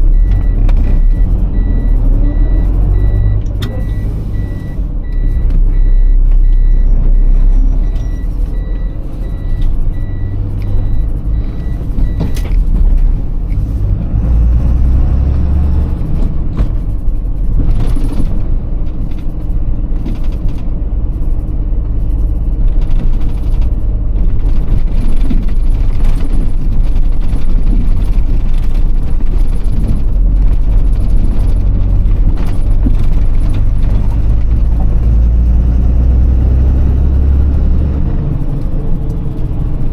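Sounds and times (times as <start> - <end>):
steady repeating beep: 0.0 - 12.5
truck diesel engine running: 0.0 - 39.9.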